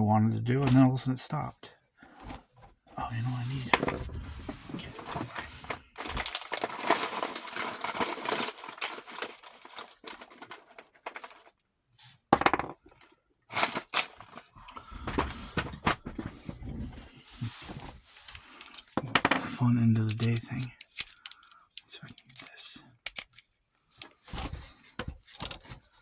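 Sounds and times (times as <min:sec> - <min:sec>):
metal tools clattering: 0:05.0 - 0:11.5, 0:17.6 - 0:21.4.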